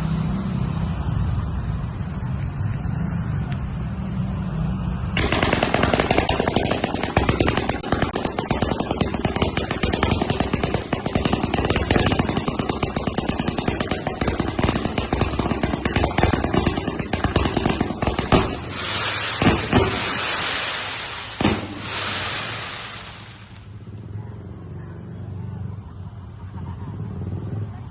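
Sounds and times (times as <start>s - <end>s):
fireworks cake popping: 5.2s - 23.7s
loud firework bangs: 5.2s - 23.8s
steady firework hiss: 5.2s - 23.8s.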